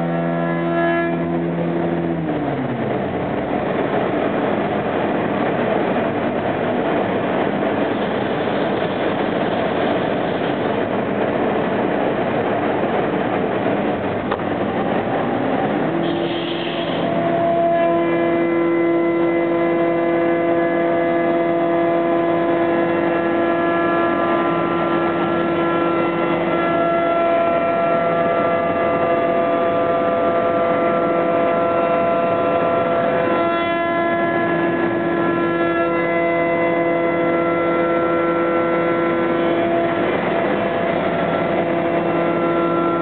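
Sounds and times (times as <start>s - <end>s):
cnc router cutting wood: 33.2s - 33.9s.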